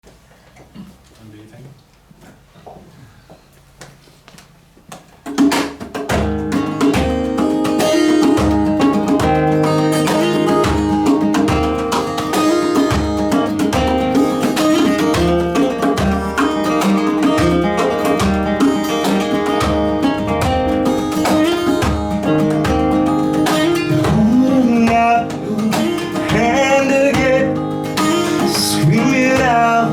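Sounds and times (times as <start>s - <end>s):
band playing guitar-led intro: 6.1s - 29.9s.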